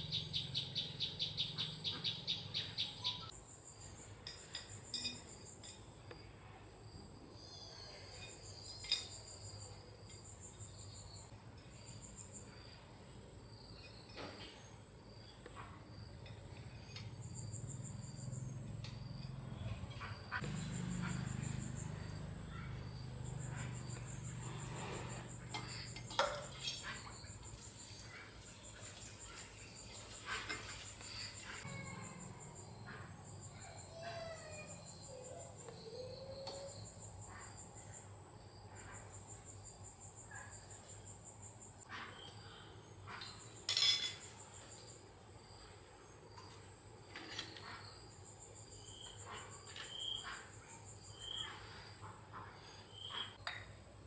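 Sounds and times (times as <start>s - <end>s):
insects trilling: 15.1s - 53.7s.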